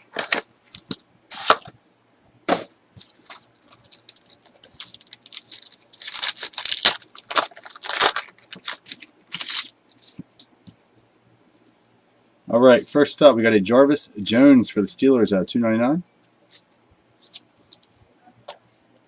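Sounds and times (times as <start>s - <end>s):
packaging torn and crinkled: 3.0s - 10.2s.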